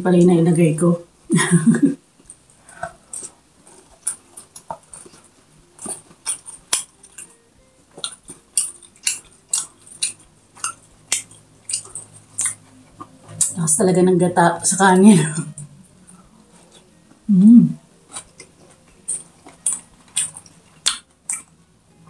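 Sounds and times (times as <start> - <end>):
chewing and wet lip-smacking: 2.2 - 13.6, 18.1 - 21.6.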